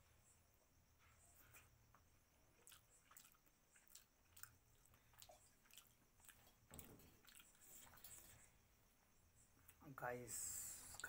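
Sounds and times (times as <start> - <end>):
wet chewing: 2.6 - 8.3.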